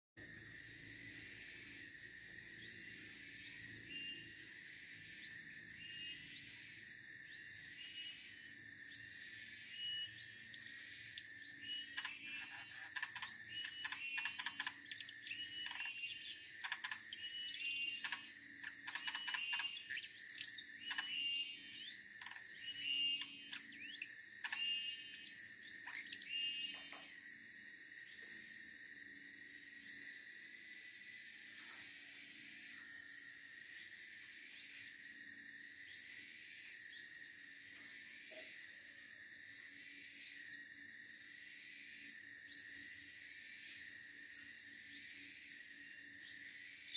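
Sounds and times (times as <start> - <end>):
bird chirping: 7.3 - 27.1.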